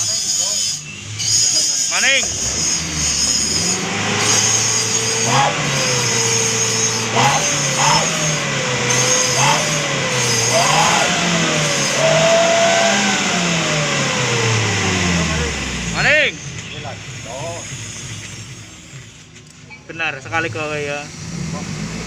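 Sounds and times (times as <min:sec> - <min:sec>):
exhaust whistling howl: 0:00.0 - 0:19.1
car engine revving: 0:00.0 - 0:22.0.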